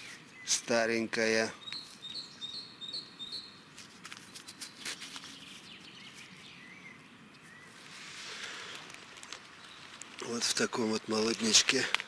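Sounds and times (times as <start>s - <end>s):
small bird chirping: 1.6s - 3.6s, 4.2s - 7.9s, 9.4s - 10.1s
light rustling: 3.7s - 6.6s, 7.4s - 12.0s.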